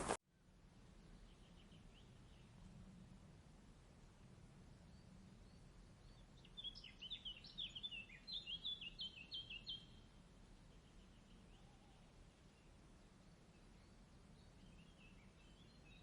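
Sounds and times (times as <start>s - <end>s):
faint low background noise: 0.0s - 16.0s
songbird twittering: 4.9s - 10.1s.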